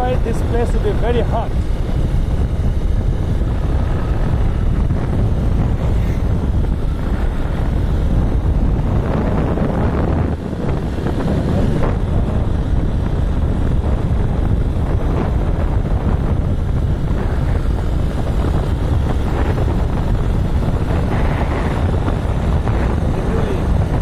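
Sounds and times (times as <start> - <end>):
motorbike engine: 0.0 - 24.0
road noise: 0.0 - 24.0
wind buffeting microphone: 0.0 - 24.0.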